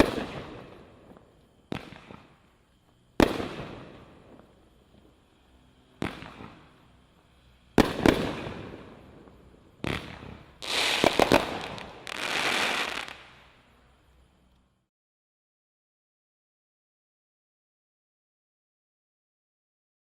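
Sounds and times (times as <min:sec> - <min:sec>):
firework bangs: 0:00.0 - 0:07.0, 0:07.6 - 0:13.4
fireworks hissing crackle: 0:00.0 - 0:14.5.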